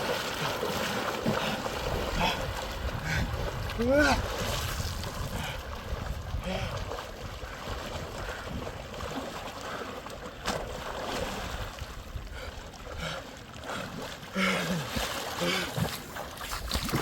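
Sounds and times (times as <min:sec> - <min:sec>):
wind blowing across microphone: 0:01.9 - 0:08.9.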